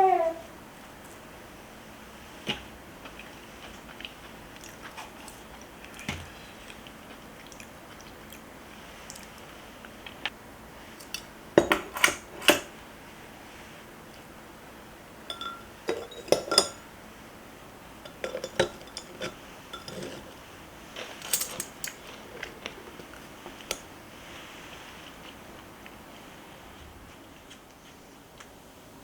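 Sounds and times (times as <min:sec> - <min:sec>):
dishes and cutlery clinking: 0:15.3 - 0:16.8, 0:18.0 - 0:20.4, 0:21.0 - 0:22.5.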